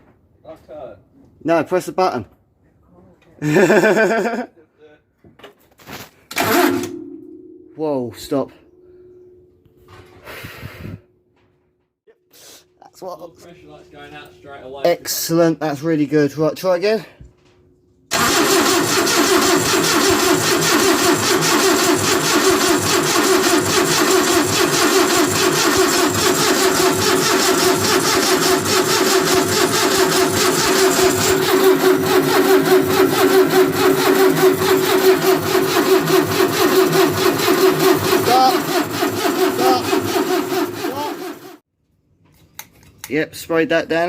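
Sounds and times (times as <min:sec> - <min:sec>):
engine cranking on starter motor: 0:06.3 - 0:07.2, 0:18.1 - 0:41.6.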